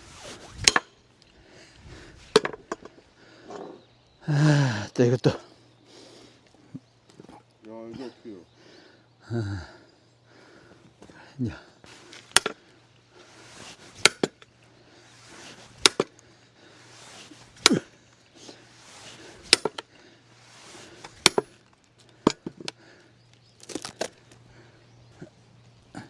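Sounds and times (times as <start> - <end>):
axe chopping wood: 12.3 - 12.6, 14.0 - 14.4, 15.8 - 16.2, 17.6 - 17.9, 19.5 - 19.8, 21.1 - 21.6.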